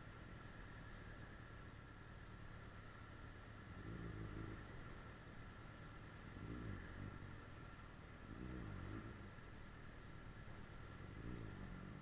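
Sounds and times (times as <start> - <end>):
motorcycle engine revving: 3.8 - 5.0, 6.3 - 7.5, 8.2 - 9.4, 10.9 - 12.0.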